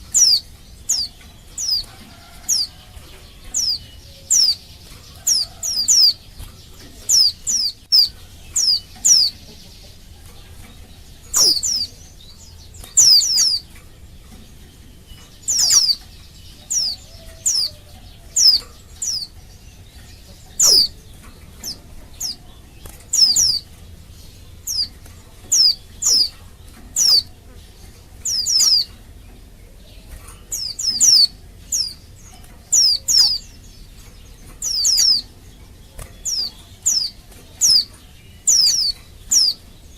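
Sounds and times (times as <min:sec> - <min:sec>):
bird high chirps: 0:00.0 - 0:39.9.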